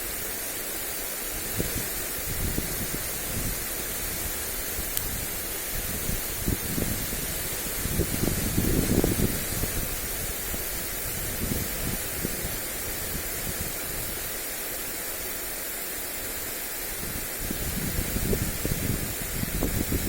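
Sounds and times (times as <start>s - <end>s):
sprinkler spraying water: 0.0s - 20.0s
wind buffeting microphone: 1.4s - 14.3s, 17.0s - 20.0s.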